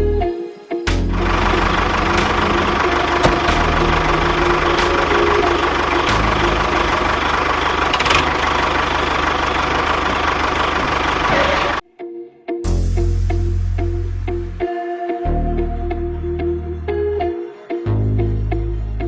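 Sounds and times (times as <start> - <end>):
tractor engine idling: 0.9 - 11.8.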